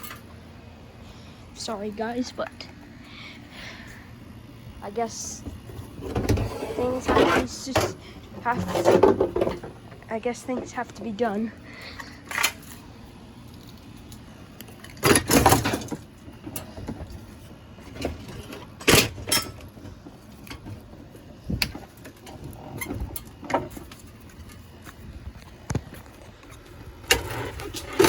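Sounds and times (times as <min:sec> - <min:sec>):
fan clattering in trash can: 0:05.9 - 0:10.6, 0:14.8 - 0:17.2.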